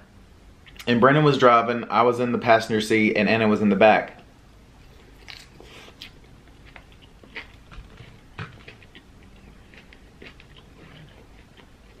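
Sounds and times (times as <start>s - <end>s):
person chewing food: 4.8s - 12.0s.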